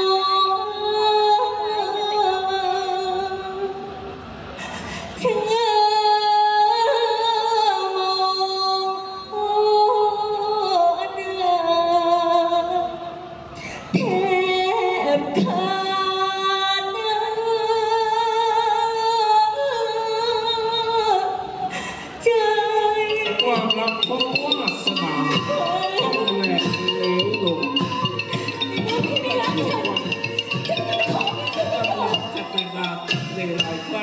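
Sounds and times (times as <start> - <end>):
woman singing wavering held notes: 22.2 - 34.0.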